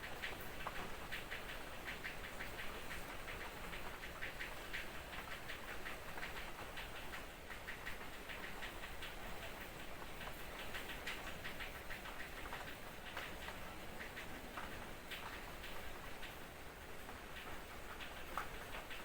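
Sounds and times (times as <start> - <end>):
high-pitched raindrop ticks: 0.0 - 19.0
light rain hissing: 0.0 - 19.0.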